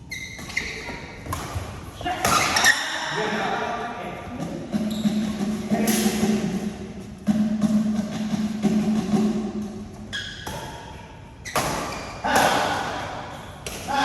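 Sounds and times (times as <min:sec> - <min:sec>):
racket striking shuttlecock: 0:00.5 - 0:02.9, 0:05.8 - 0:06.5, 0:10.4 - 0:14.0.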